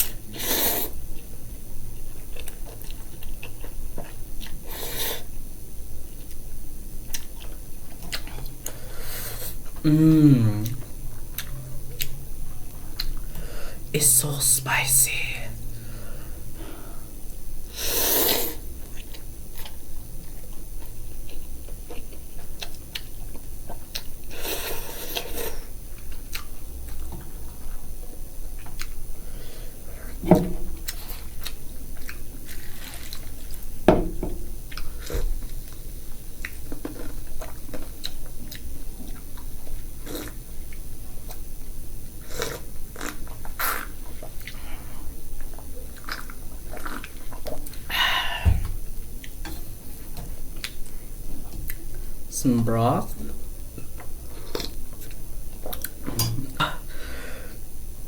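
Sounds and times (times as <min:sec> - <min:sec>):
person chewing and slurping noodles: 0:02.1 - 0:05.3, 0:15.8 - 0:27.9, 0:28.5 - 0:33.8, 0:34.7 - 0:41.4, 0:42.2 - 0:48.1, 0:53.7 - 0:57.1.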